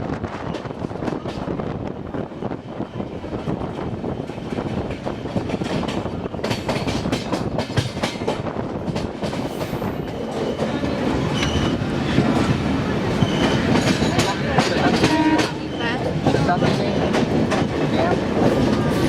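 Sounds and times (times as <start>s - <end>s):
train wheels clattering over rail joints: 3.7s - 19.0s
high wheel squeals: 9.8s - 11.9s, 13.1s - 13.7s.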